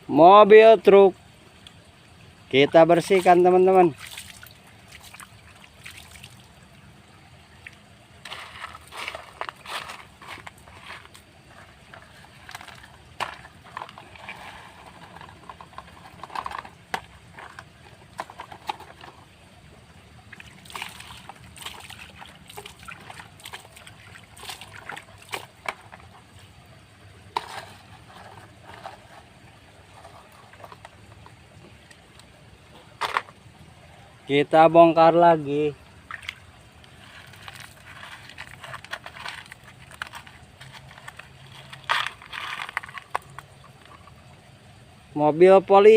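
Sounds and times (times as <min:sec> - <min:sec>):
water sloshing and splashing: 0:01.5 - 0:34.3, 0:35.4 - 0:45.0
scrubbing scrapes: 0:08.2 - 0:19.3, 0:27.3 - 0:31.3, 0:36.9 - 0:44.1.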